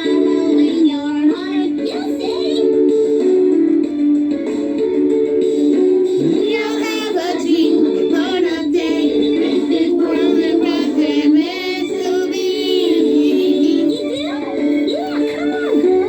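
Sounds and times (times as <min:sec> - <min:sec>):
backing music: 0:00.0 - 0:16.0
people singing with vibrato: 0:06.2 - 0:16.0.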